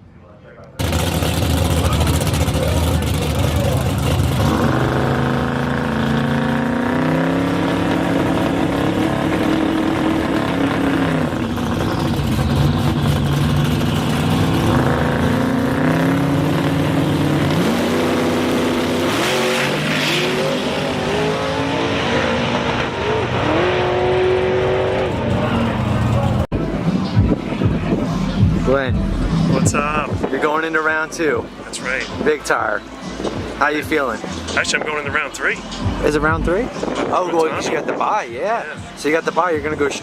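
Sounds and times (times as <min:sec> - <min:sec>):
drag car engine revving: 0:00.8 - 0:26.8.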